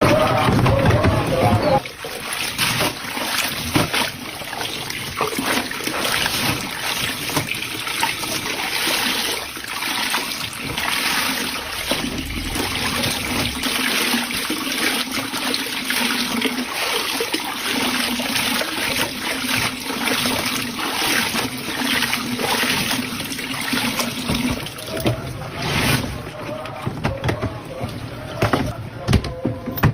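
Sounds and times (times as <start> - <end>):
water splashing in washing machine: 0.0 - 29.9.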